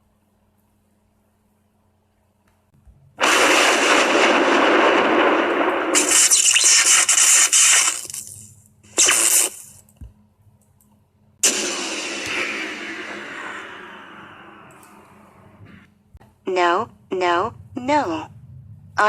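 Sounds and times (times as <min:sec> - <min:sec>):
thunderclap crackling crash: 0:03.2 - 0:08.0, 0:11.4 - 0:14.7.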